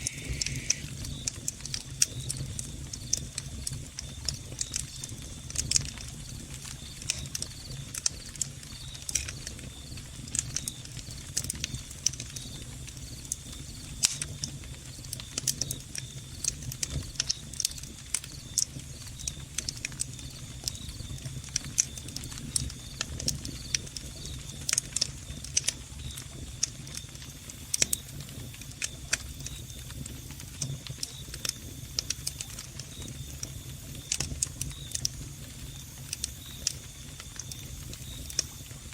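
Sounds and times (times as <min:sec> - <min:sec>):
crickets chirping: 0:00.0 - 0:01.3
steady low hum: 0:00.0 - 0:02.3
log fire crackling and popping: 0:00.0 - 0:38.9.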